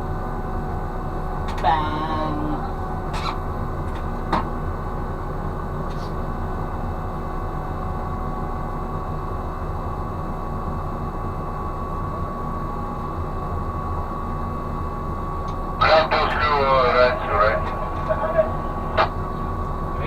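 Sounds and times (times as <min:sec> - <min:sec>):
ship machinery droning: 0:15.8 - 0:20.0.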